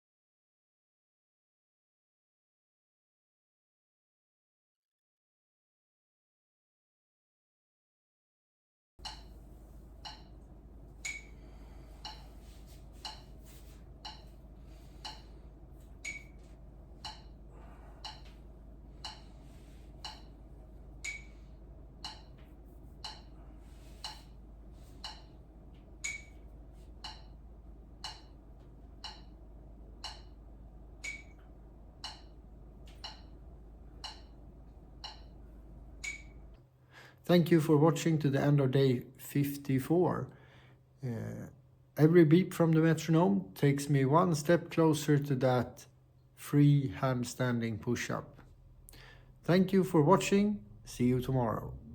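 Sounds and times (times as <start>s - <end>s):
metronome ticking: 9.0s - 9.3s, 10.0s - 10.3s, 13.0s - 13.3s, 14.0s - 14.3s, 16.0s - 16.3s, 17.0s - 17.3s, 18.0s - 18.3s, 19.0s - 19.2s, 20.0s - 20.3s, 21.0s - 21.4s, 22.0s - 22.4s, 23.0s - 23.3s, 25.0s - 25.3s, 26.0s - 26.4s, 27.0s - 27.4s, 28.0s - 28.4s, 29.0s - 29.4s, 30.0s - 30.4s, 31.0s - 31.4s, 32.0s - 32.4s, 33.0s - 33.4s, 34.0s - 34.4s, 35.0s - 35.4s, 36.0s - 36.4s
low steady hum: 9.0s - 51.9s.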